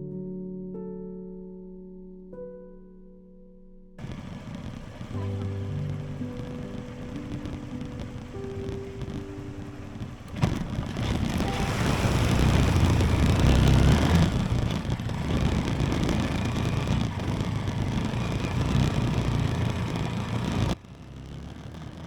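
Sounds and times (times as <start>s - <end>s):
motorcycle engine: 4.0s - 22.0s.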